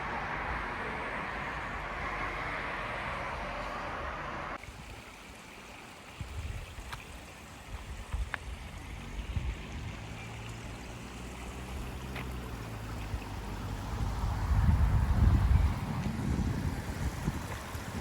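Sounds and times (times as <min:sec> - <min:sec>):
running water: 0:04.6 - 0:18.0
wind rumble on microphone: 0:06.2 - 0:10.2, 0:12.9 - 0:18.0.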